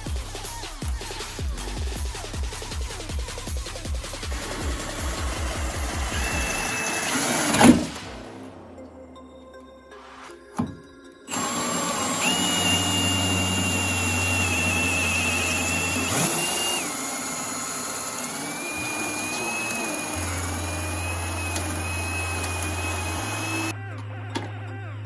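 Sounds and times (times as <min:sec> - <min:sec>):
power tool whining: 0:04.3 - 0:08.1, 0:11.3 - 0:23.8.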